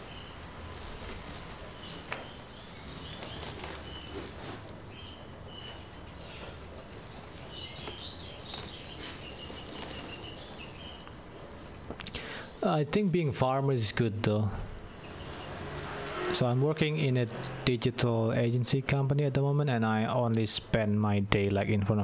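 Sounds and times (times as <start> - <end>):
small birds chirping: 0.0 - 13.3, 13.9 - 16.3.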